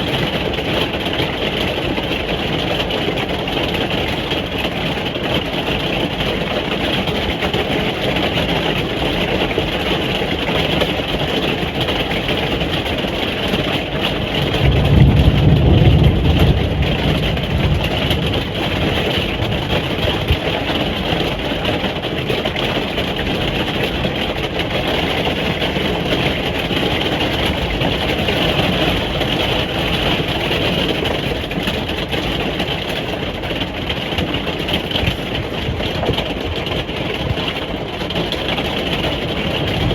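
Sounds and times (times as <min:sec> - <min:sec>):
rain pattering on caravan roof: 0:00.0 - 0:39.9
low rumble: 0:39.6 - 0:39.9.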